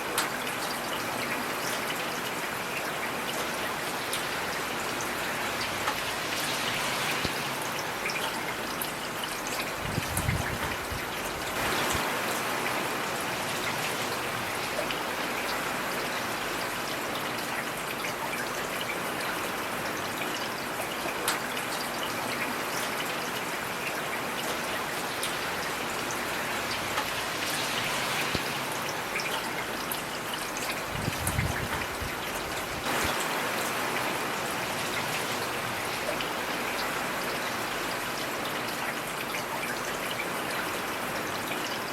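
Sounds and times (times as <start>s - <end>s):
raindrops ticking close by: 0.0s - 41.9s
heavy rain hissing: 4.0s - 8.7s, 9.7s - 16.6s, 25.0s - 30.2s, 30.8s - 38.1s.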